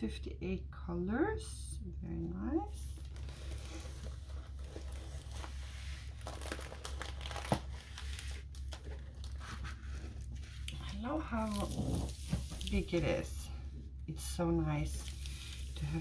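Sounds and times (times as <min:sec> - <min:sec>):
plastic packaging crinkling: 0:02.9 - 0:13.0, 0:14.8 - 0:16.0.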